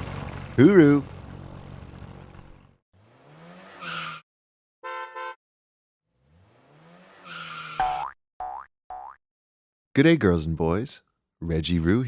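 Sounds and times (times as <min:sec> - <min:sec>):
car engine revving: 0:00.0 - 0:04.2, 0:06.1 - 0:07.8
short car horn beeps: 0:04.8 - 0:05.4.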